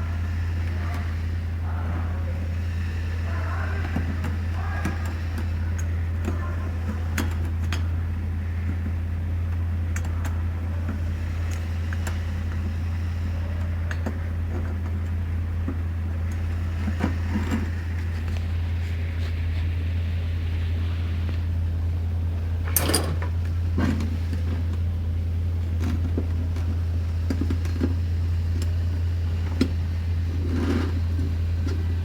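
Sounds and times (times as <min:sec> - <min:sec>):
steady low hum: 0:00.0 - 0:32.0
metal parts clicking and tapping: 0:22.7 - 0:23.3.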